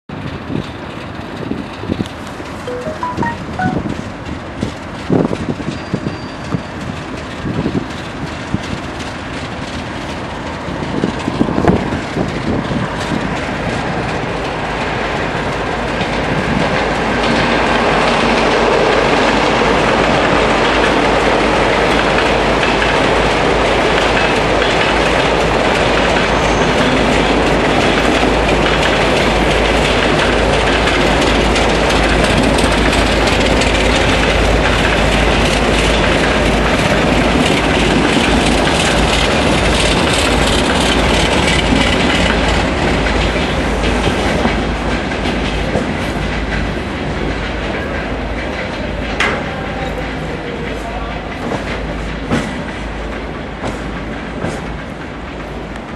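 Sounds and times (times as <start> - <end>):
diesel locomotive rumbling: 0.1 - 55.9
freight wagon wheel clatter: 24.0 - 55.6.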